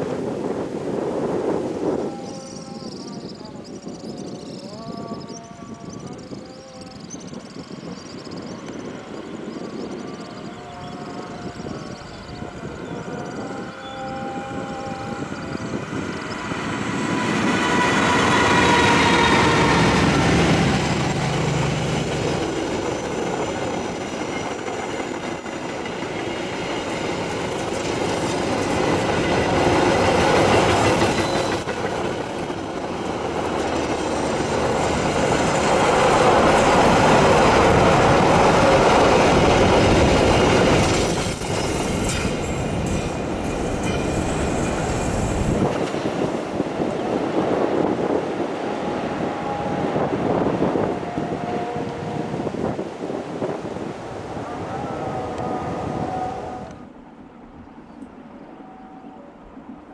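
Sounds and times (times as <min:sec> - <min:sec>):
locomotive engine passing: 0:14.5 - 0:57.2.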